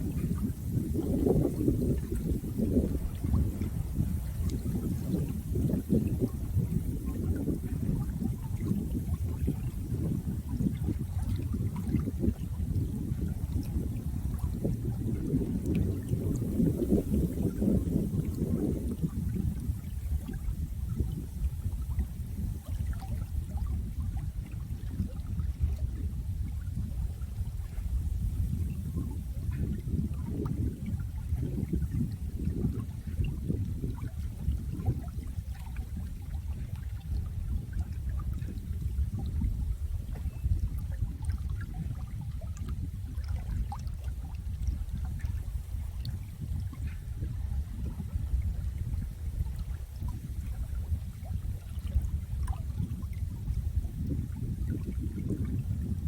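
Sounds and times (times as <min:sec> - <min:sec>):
running water rushing: 0:00.0 - 0:23.3
water splashes and drips: 0:00.0 - 0:55.9.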